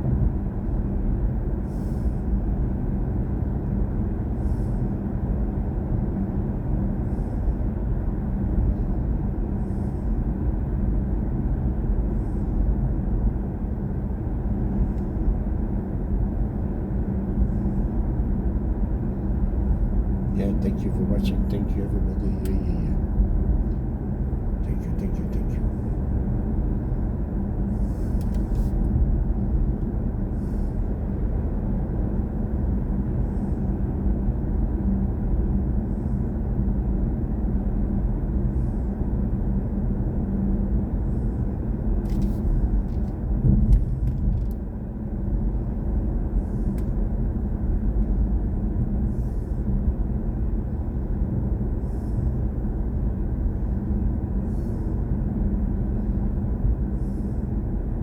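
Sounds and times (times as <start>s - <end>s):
electric car road and tyre rumble: 25.6s - 58.0s.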